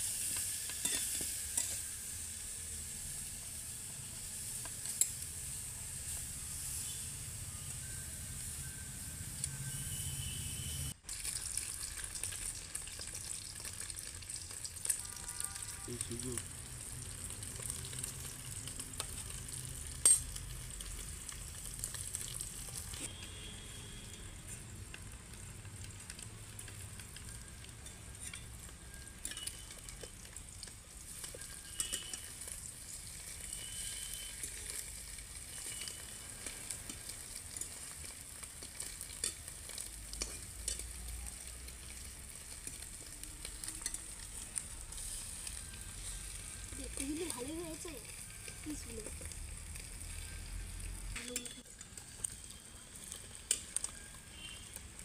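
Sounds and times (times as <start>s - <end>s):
oil sizzling in a pan: 0.0s - 55.0s
metal spatula scraping: 0.2s - 2.0s, 43.4s - 46.6s.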